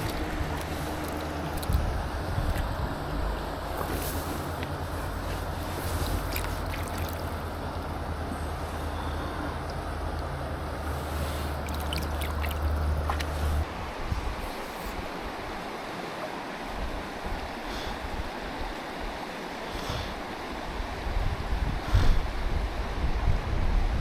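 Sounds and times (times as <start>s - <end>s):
water rushing over rocks: 0.0s - 7.8s, 11.0s - 13.7s.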